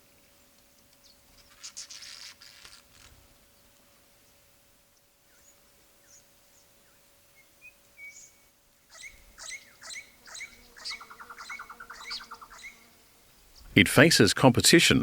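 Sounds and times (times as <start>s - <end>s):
parrots calling: 8.9s - 12.8s.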